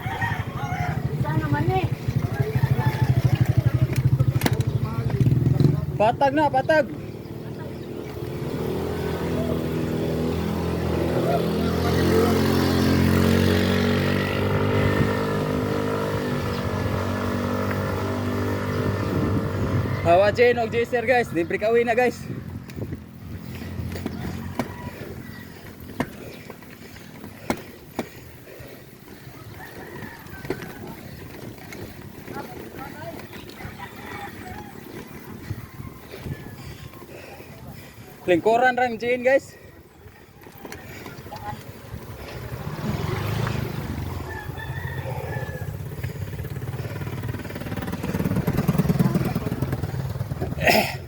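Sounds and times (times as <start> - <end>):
rooster crowing: 0.0 - 1.4, 2.1 - 3.8, 24.0 - 25.7, 29.3 - 31.3, 33.4 - 36.9, 43.8 - 46.1
bicycle riding rumble: 0.0 - 51.0.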